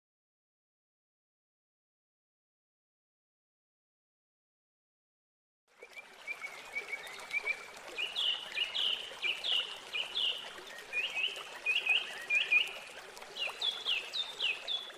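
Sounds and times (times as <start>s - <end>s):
faint trickle of water: 5.7s - 14.9s
songbird chirping: 6.0s - 14.9s.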